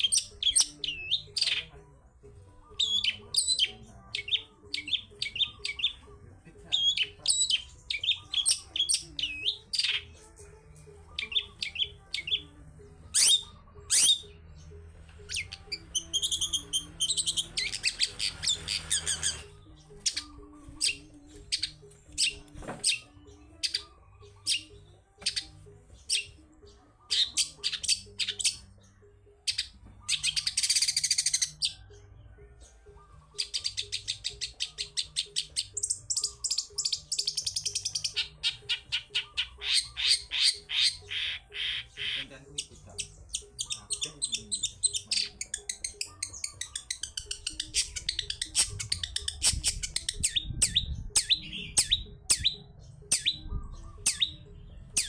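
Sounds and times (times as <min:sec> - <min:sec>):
harsh scratchy bird calls: 0:13.1 - 0:14.5, 0:15.2 - 0:26.3, 0:33.3 - 0:54.4
shrike whistled song: 0:13.1 - 0:14.5, 0:33.0 - 0:55.0.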